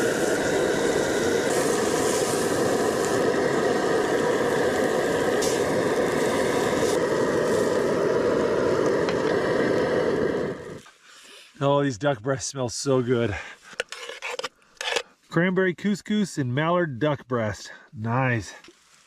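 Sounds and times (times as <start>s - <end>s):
gas stove burner roaring: 0.0s - 10.8s.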